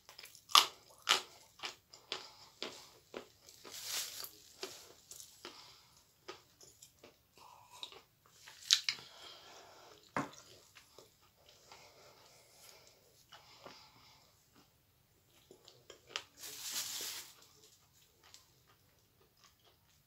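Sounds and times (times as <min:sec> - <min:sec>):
crunching and chewing clay: 0:00.0 - 0:09.1.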